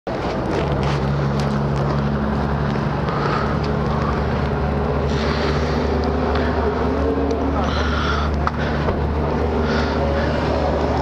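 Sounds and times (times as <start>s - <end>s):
rush of air: 2.9s - 11.0s.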